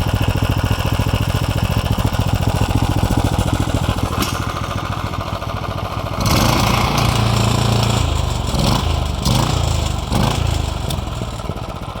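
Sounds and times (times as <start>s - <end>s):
small engine revving: 6.2s - 11.5s.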